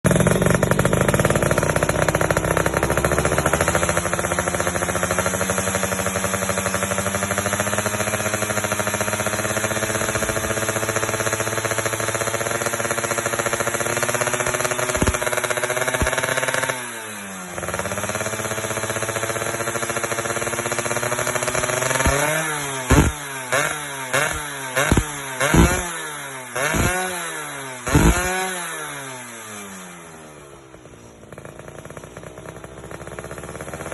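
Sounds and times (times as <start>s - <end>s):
two-stroke engine idling: 0.0s - 33.9s
engine throttle blips: 0.1s - 33.9s.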